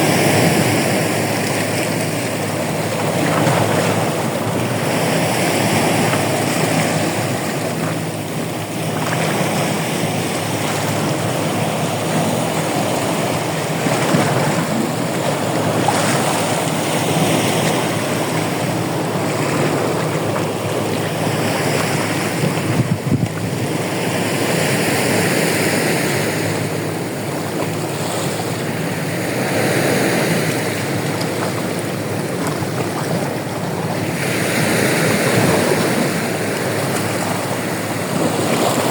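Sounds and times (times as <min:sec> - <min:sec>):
sea waves washing in: 0:00.0 - 0:38.9
wind buffeting microphone: 0:00.0 - 0:38.9.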